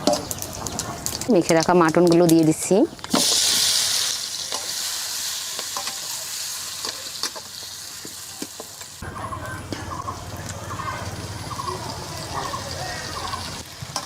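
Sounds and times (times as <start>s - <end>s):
meat sizzling in hot oil: 3.0s - 9.0s, 11.1s - 14.0s.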